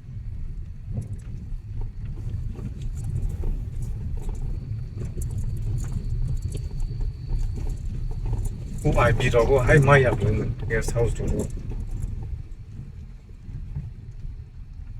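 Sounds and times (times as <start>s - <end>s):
vehicle rumbling off-road: 0.0s - 14.9s.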